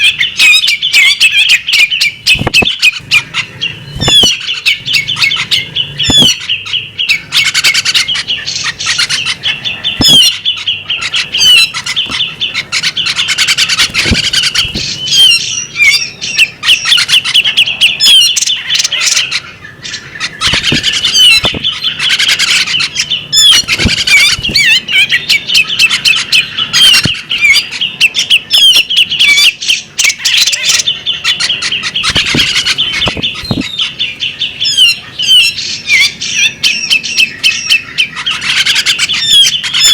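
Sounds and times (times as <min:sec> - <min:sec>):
bird singing chirps and trills: 0:00.0 - 0:39.9
short knocks: 0:20.5 - 0:21.6.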